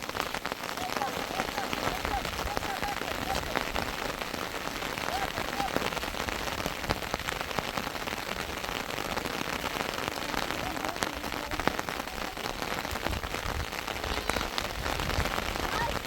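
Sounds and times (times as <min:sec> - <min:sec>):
heavy rain falling: 0:00.0 - 0:16.0
raindrops ticking: 0:00.0 - 0:16.0.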